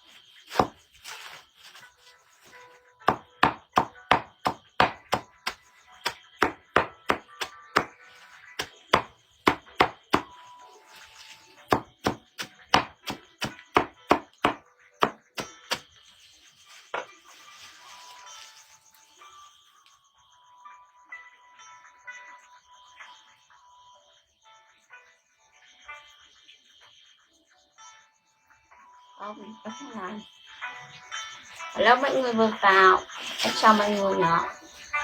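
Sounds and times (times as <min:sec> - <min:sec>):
rapid chopping strikes: 0:03.1 - 0:08.0, 0:08.6 - 0:10.3, 0:11.7 - 0:15.9.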